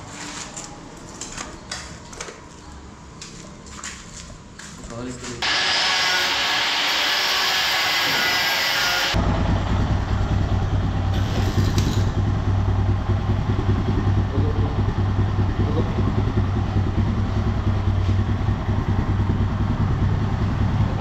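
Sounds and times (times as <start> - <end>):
motorcycle engine idling: 9.2 - 21.0.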